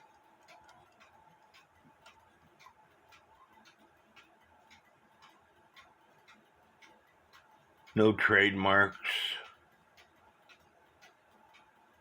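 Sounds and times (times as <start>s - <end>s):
mechanical clock ticking: 0.0s - 12.0s.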